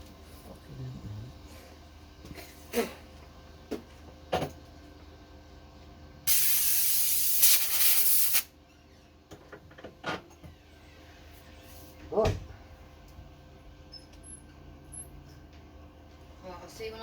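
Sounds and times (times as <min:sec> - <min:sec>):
spray hiss: 0:06.3 - 0:08.5.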